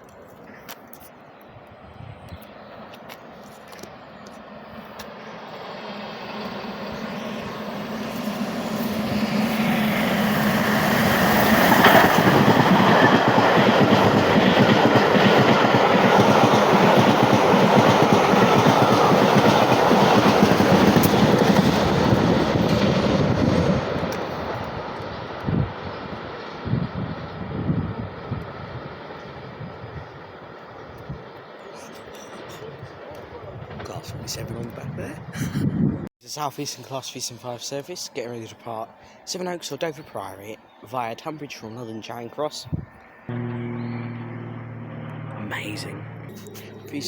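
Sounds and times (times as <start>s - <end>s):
train wheels clattering over rail joints: 11.2s - 23.1s.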